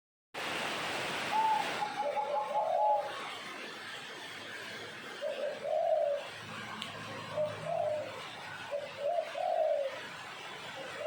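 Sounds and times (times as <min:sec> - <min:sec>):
steady background hiss: 0:00.4 - 0:11.0
dove cooing: 0:01.3 - 0:03.2, 0:05.1 - 0:10.2.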